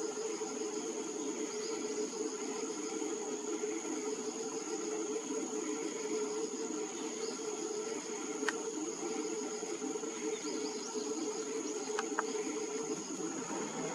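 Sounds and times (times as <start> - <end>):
constant low hum: 0.0 - 13.9
high insect trilling: 0.0 - 13.9
small clicks: 8.4 - 8.6, 11.9 - 12.4.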